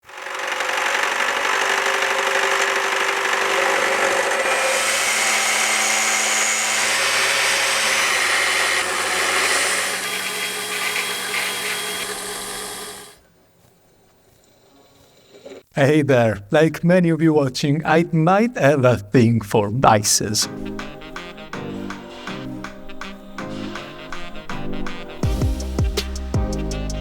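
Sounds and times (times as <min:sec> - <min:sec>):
power tool whirring: 0:00.0 - 0:13.2.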